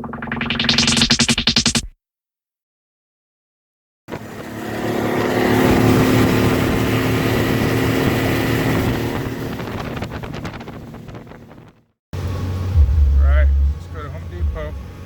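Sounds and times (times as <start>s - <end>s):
vehicle engine running: 0.0s - 1.7s, 12.2s - 15.0s.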